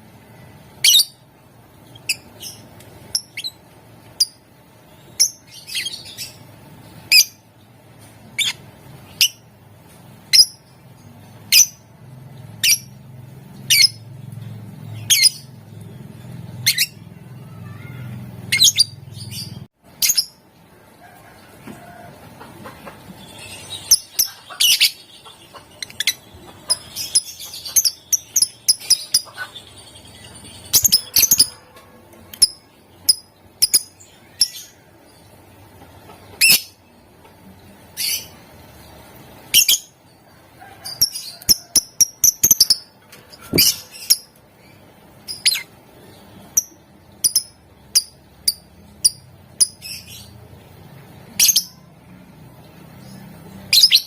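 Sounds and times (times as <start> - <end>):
lovebird chirping: 0.5 - 7.5, 8.3 - 9.5, 12.5 - 14.1, 14.7 - 20.4, 23.1 - 35.3, 36.3 - 36.9, 40.9 - 50.4, 51.3 - 52.0, 53.0 - 54.0.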